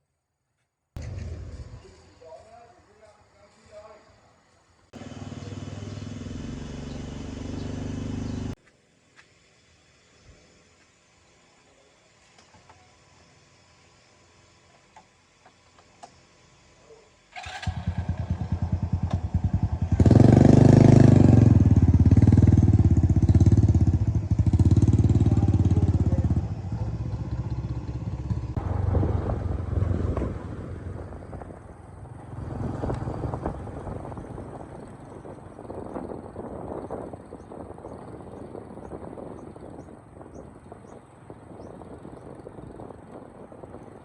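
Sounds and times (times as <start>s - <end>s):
car engine running and idling: 5.0s - 8.6s
car engine starter cranking: 17.3s - 18.4s.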